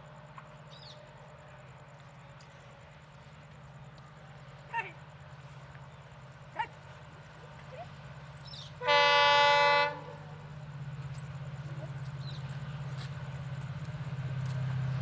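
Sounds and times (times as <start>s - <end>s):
low rumble of approaching train: 0.0s - 15.0s
locomotive horn blast: 8.8s - 10.3s.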